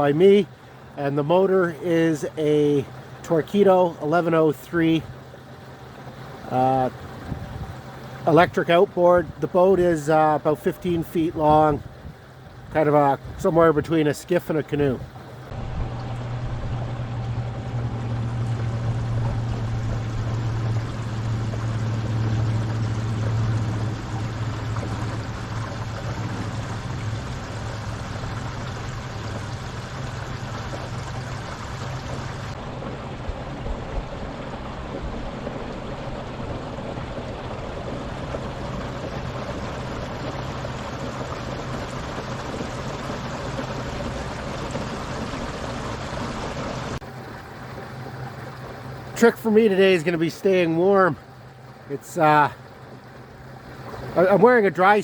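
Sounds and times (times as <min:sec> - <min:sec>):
electric outboard motor hum: 0:00.0 - 0:55.0
water rushing along hull: 0:00.0 - 0:55.0.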